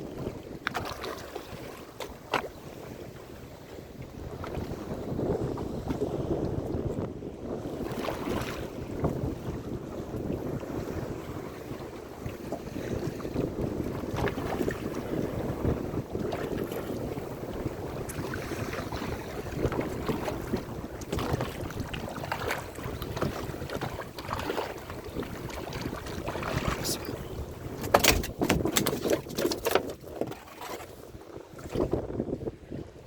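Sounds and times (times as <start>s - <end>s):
sea wash: 0.0s - 33.0s
wind on microphone: 0.0s - 33.0s
sharp knocks and clatters: 27.8s - 30.0s.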